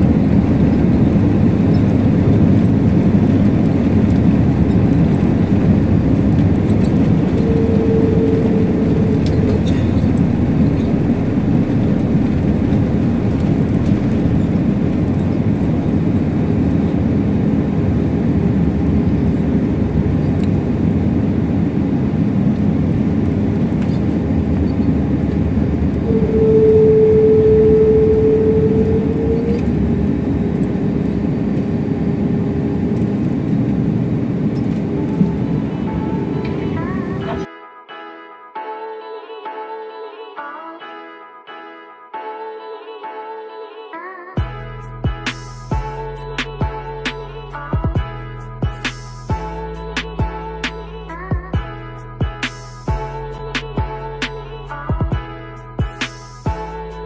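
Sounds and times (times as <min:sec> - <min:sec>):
airliner cabin rumble: 0:00.0 - 0:37.5
mid-pitched tone: 0:07.3 - 0:10.0, 0:26.0 - 0:30.1.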